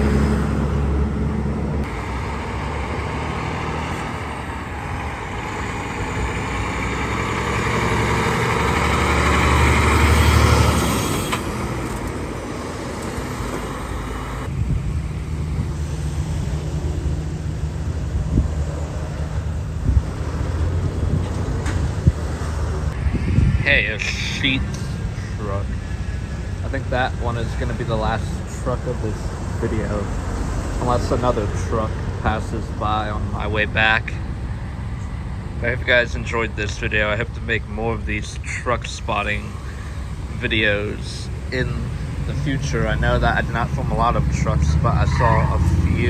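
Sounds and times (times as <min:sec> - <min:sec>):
vehicle passing close by: 0:00.0 - 0:33.0, 0:39.5 - 0:46.0
low engine hum: 0:00.0 - 0:46.0.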